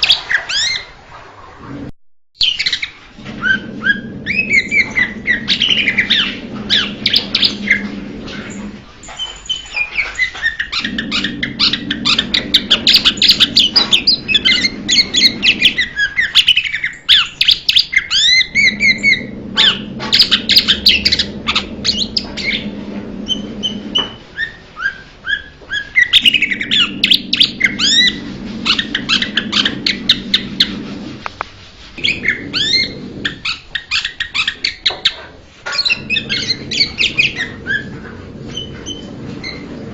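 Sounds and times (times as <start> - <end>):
low steady hum: 3.0 - 16.1, 18.3 - 24.4, 26.1 - 33.6.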